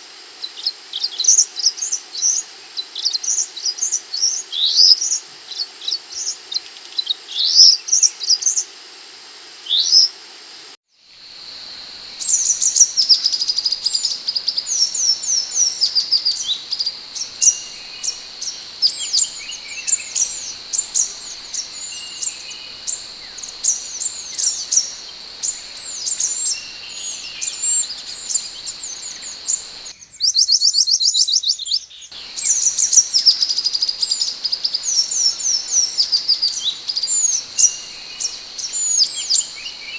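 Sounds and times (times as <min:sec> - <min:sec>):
bird song of rapid chirps: 0:11.2 - 0:39.9
steady high whine: 0:11.3 - 0:29.9.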